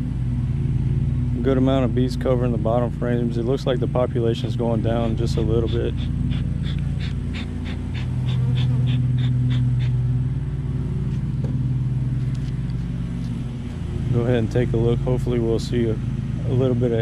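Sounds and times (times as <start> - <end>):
steady low hum: 0.0 - 17.0
rapid rhythmic panting: 5.0 - 10.0.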